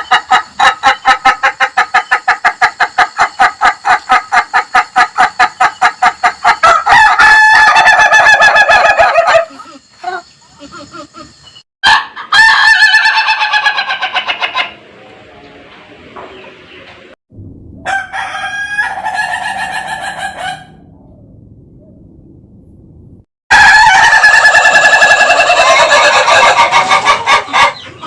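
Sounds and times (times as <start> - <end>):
rooster crowing stutteringly: 17.8 - 20.8, 23.5 - 27.7.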